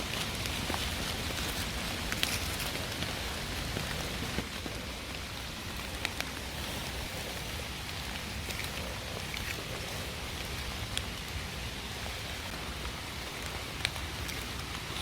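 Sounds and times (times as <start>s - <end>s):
sharp raindrop taps: 0.0s - 6.6s
steady rain falling: 0.0s - 15.0s.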